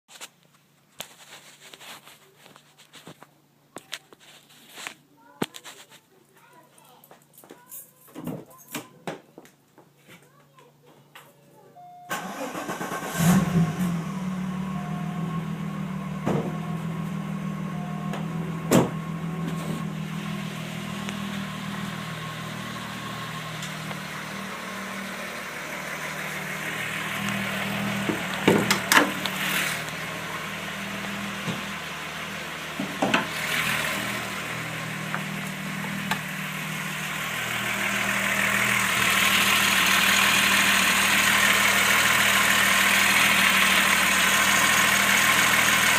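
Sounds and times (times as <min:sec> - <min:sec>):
car engine idling: 0:12.1 - 0:45.9.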